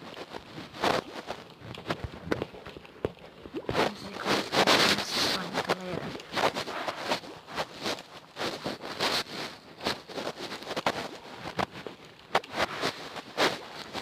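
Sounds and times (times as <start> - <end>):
slime squishing and crackling: 0.0 - 14.0.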